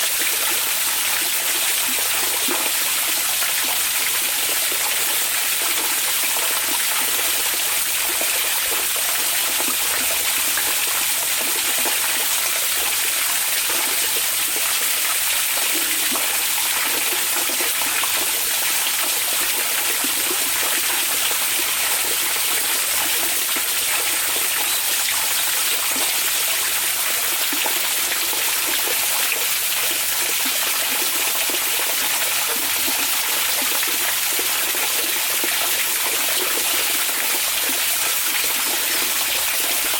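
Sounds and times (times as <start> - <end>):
water flowing and trickling: 0.0 - 39.9.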